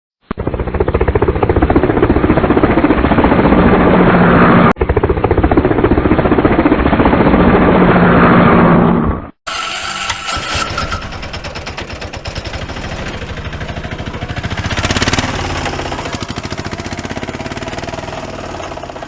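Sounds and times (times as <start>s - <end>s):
rapid rattling engine-like pulses: 9.5s - 19.0s.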